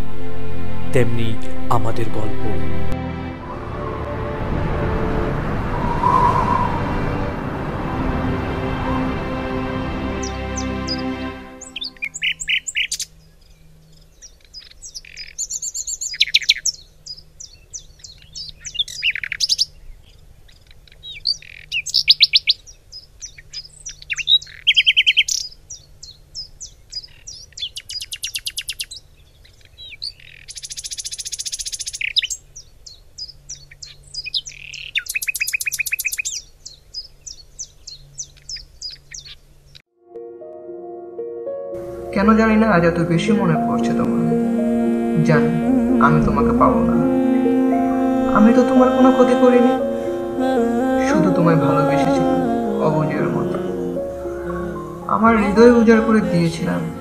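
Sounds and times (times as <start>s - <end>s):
songbirds chirping and trilling: 8.8s - 39.8s.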